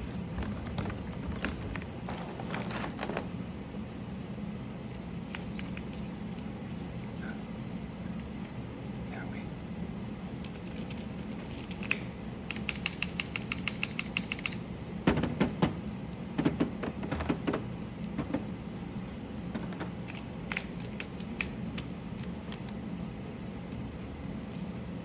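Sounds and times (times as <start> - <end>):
mechanical keyboard clicking: 10.4 - 14.6.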